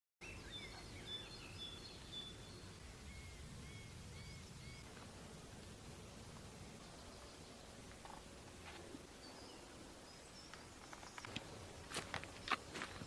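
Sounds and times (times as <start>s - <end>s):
songbirds chirping: 0.2s - 13.0s
low steady rumble: 2.3s - 10.1s.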